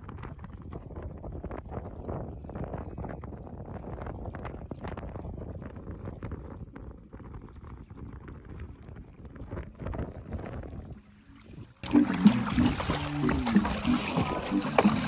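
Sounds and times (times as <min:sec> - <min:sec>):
wind on microphone: 0:00.0 - 0:15.0
background music: 0:11.8 - 0:15.0.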